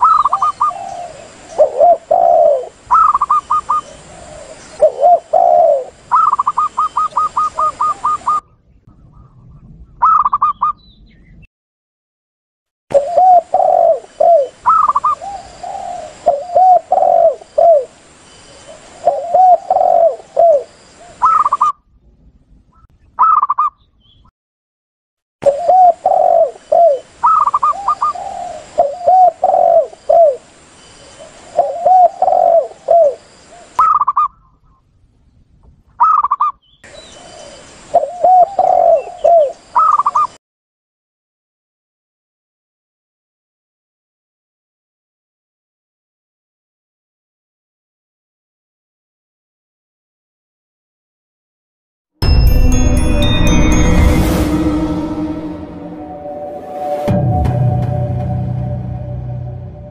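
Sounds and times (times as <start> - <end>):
faint steady hiss: 0.0 - 8.3, 13.0 - 21.3, 25.7 - 33.8, 36.9 - 39.8
doves cooing: 0.0 - 8.4, 13.0 - 17.9, 18.7 - 21.7, 25.4 - 30.4, 31.6 - 34.3, 37.2 - 40.3.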